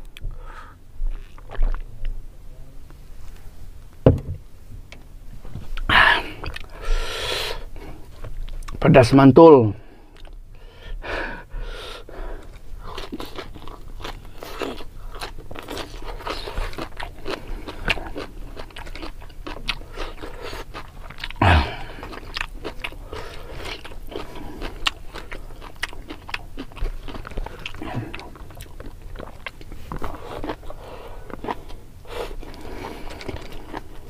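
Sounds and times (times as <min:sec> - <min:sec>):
person crunching raw greens: 0:11.8 - 0:34.0
person humming low: 0:21.4 - 0:22.0.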